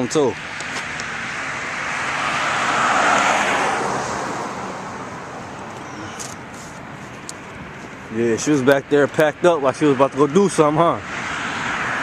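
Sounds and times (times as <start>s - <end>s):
car passing by: 0.7s - 6.8s, 9.8s - 12.0s.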